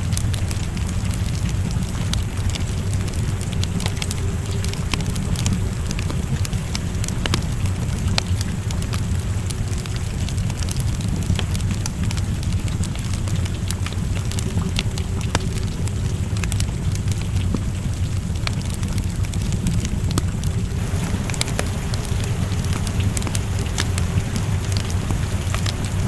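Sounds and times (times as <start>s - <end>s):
rain falling: 0.0s - 26.0s
wood fire crackling and popping: 0.0s - 26.0s
low rumble: 0.6s - 9.4s, 19.8s - 26.0s.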